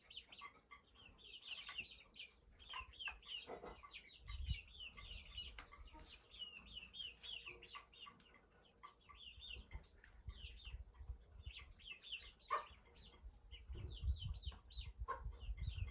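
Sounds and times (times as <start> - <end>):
birds chirping: 0.0 - 15.9.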